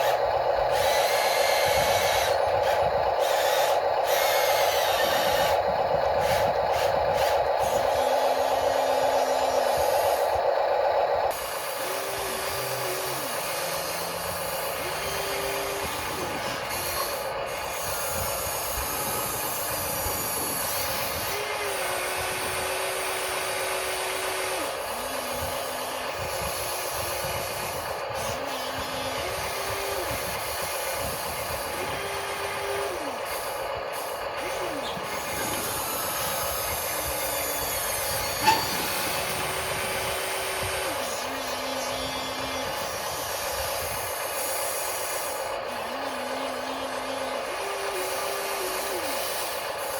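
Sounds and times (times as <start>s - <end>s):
small electric motors whining: 0.0s - 49.9s.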